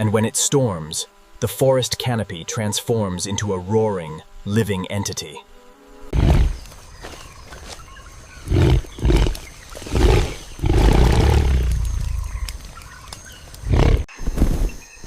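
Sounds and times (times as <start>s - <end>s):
large animal roaring: 6.1s - 6.6s, 8.4s - 12.6s, 13.7s - 14.1s.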